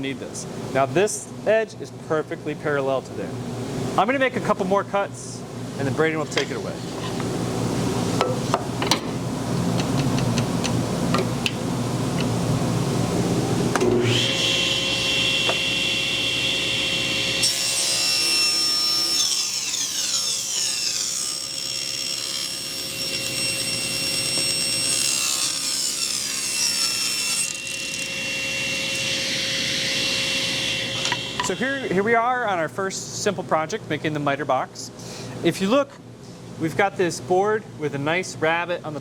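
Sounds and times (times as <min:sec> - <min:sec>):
table saw blade whine: 0:13.7 - 0:32.1
saw cutting wood: 0:14.0 - 0:32.0.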